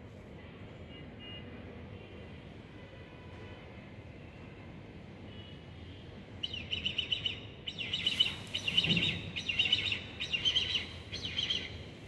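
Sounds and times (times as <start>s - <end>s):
bird chirping rapidly: 6.4s - 11.9s.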